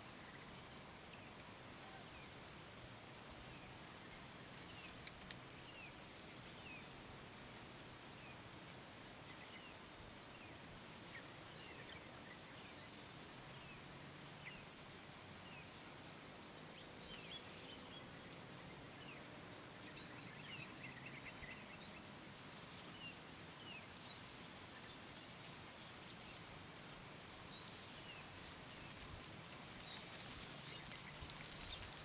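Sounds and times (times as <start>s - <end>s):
faint steady hiss: 0.0s - 32.0s
birds chirping: 29.7s - 32.0s.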